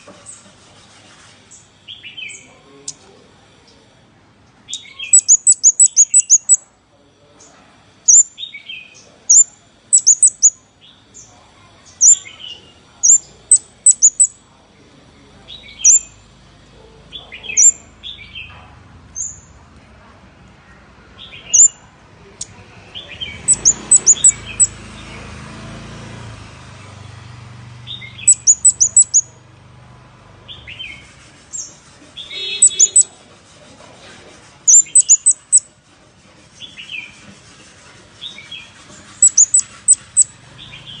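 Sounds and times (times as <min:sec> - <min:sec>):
high sharp bird chipping calls: 0:04.7 - 0:06.7, 0:08.1 - 0:10.6, 0:11.9 - 0:14.4, 0:15.5 - 0:16.2, 0:17.3 - 0:18.5, 0:21.2 - 0:21.8, 0:22.4 - 0:25.2, 0:27.9 - 0:29.4, 0:30.5 - 0:33.2, 0:34.7 - 0:35.7, 0:38.2 - 0:41.0.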